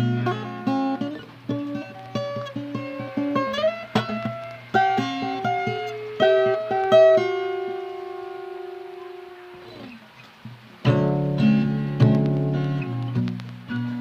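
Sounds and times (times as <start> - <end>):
plucked guitar melody: 0.0 - 14.0.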